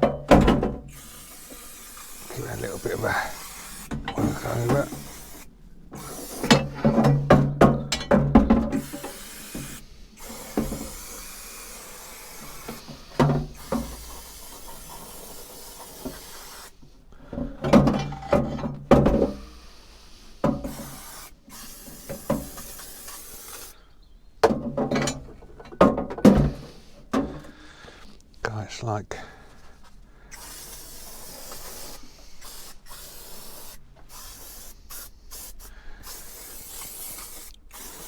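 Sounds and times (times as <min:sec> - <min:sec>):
knocks and clunks: 0:00.0 - 0:00.9, 0:06.5 - 0:08.9, 0:17.2 - 0:19.5, 0:20.4 - 0:20.8, 0:24.4 - 0:27.6
aerosol spray hissing: 0:00.9 - 0:06.9, 0:08.8 - 0:16.8, 0:19.4 - 0:23.8, 0:30.3 - 0:38.0.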